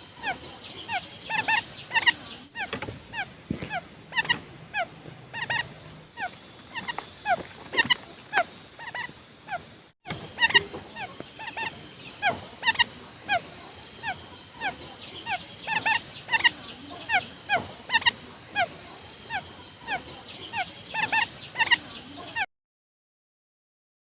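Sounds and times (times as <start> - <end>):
quail calling: 0.0 - 22.5.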